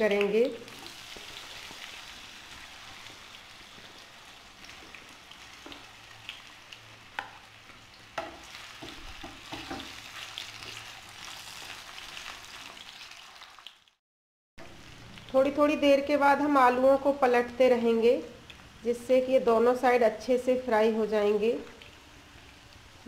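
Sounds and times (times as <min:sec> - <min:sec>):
potatoes sizzling in oil: 0:00.0 - 0:14.0
spatula knocking against pan: 0:08.2 - 0:10.0.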